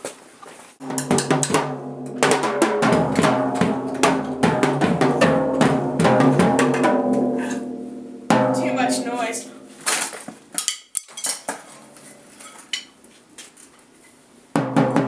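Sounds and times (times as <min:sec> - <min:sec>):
drum kit playing busy beat: 0:00.8 - 0:10.5, 0:14.6 - 0:15.0.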